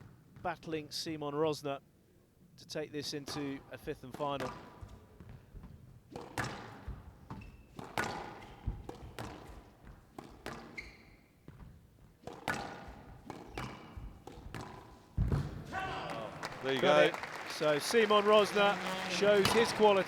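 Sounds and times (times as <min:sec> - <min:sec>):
squash ball thumps and cracks: 0:04.2 - 0:15.8.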